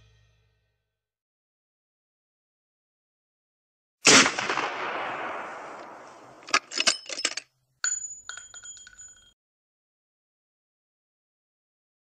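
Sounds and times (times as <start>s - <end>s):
loud bang: 4.1s - 6.6s
metallic clinks ringing: 6.5s - 9.4s.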